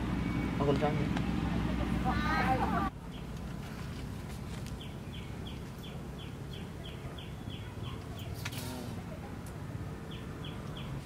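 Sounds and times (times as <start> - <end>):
bird chirping: 3.0 - 3.4, 4.7 - 8.4, 10.0 - 11.0.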